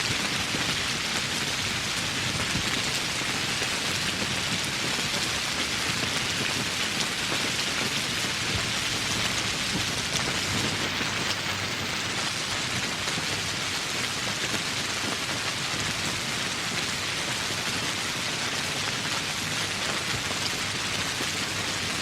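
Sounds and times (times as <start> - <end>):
rain pattering: 0.0 - 22.0.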